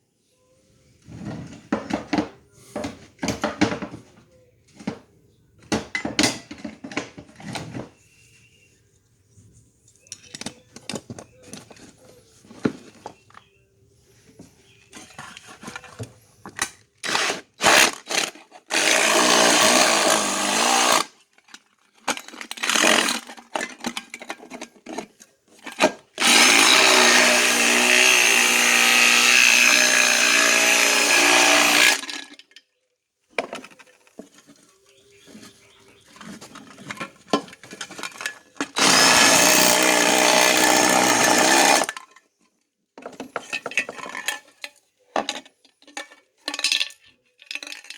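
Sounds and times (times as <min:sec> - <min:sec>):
clicks and handling knocks: 0:01.0 - 0:08.0, 0:09.8 - 0:13.6, 0:33.3 - 0:39.0, 0:41.8 - 0:47.9
power tool cutting metal can: 0:17.0 - 0:21.2, 0:22.5 - 0:23.3, 0:26.2 - 0:32.2, 0:38.8 - 0:41.9.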